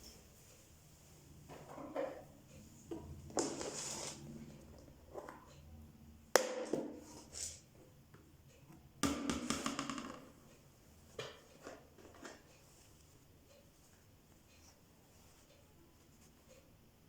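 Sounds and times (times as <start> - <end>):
hard objects knocking: 9.0 - 10.4.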